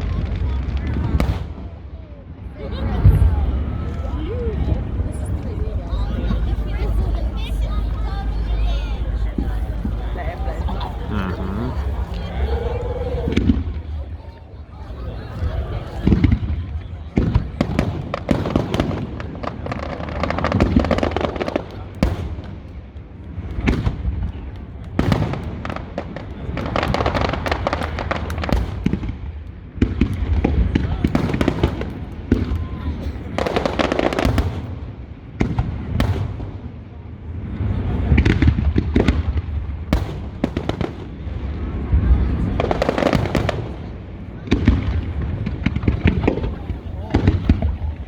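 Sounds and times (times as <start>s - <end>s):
fireworks crackling: 0.0s - 1.8s, 2.6s - 48.0s
low rumble: 3.0s - 14.2s.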